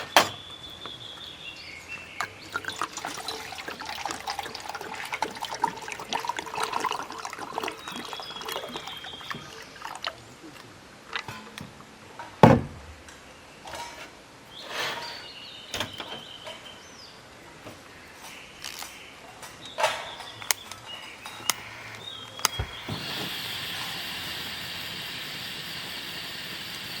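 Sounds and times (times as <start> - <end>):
steady hiss: 20.4 - 27.0.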